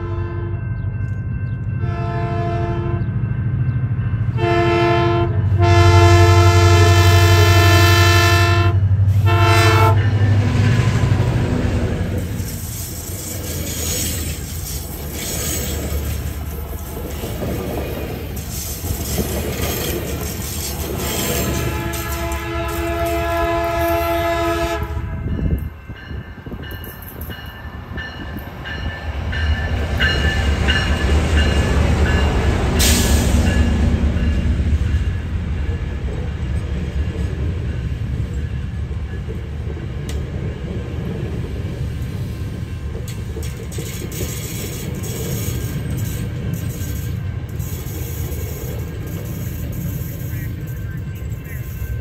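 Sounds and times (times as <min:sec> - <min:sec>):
train horn chord: 0:00.0 - 0:00.7, 0:01.8 - 0:03.2, 0:04.3 - 0:11.3, 0:21.3 - 0:25.6
diesel locomotive rumble: 0:00.0 - 0:52.0.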